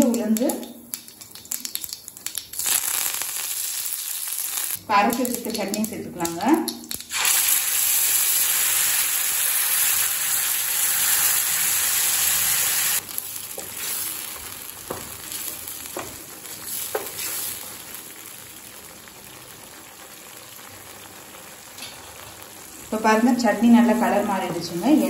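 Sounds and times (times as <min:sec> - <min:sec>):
paste sizzling in hot oil: 0:02.1 - 0:04.8, 0:07.0 - 0:23.0.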